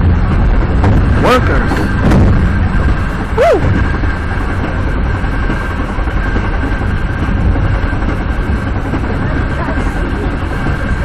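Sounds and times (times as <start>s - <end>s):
rumble of train wheels on rail: 0.0s - 11.0s.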